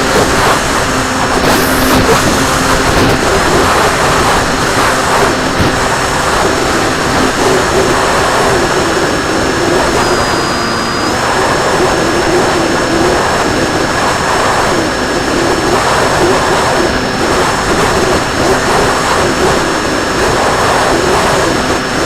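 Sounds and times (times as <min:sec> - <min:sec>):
thin high whine: 0:00.0 - 0:14.8
model plane propeller and motor: 0:00.0 - 0:22.0
wind noise: 0:00.0 - 0:22.0.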